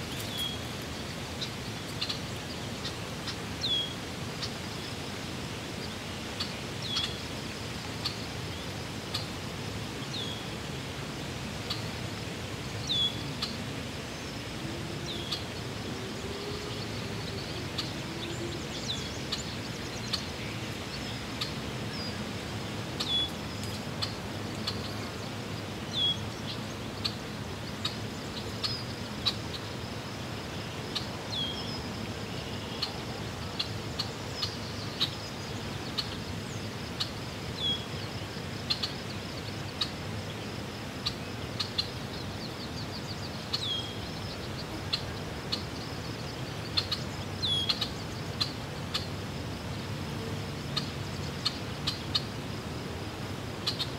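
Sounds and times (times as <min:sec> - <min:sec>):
bird chirping: 0:23.0 - 0:25.1, 0:41.0 - 0:49.1.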